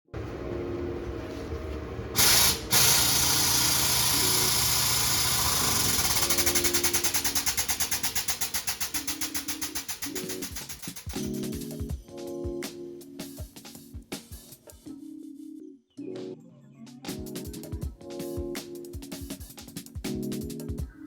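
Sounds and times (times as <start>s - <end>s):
car engine running with hiss: 1.7s - 11.4s.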